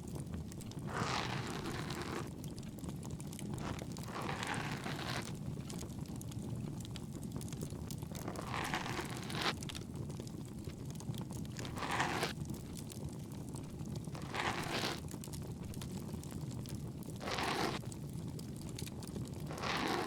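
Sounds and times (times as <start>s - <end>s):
soft rubbing in ear: 0.8s - 2.3s, 3.6s - 5.3s, 14.2s - 15.0s, 17.2s - 17.8s, 19.5s - 20.0s
bonfire crackling: 2.0s - 4.1s.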